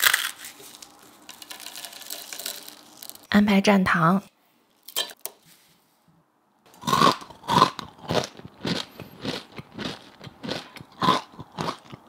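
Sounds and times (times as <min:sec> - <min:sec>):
crunchy chewing of rice crisps: 0:00.0 - 0:03.2, 0:06.8 - 0:12.0.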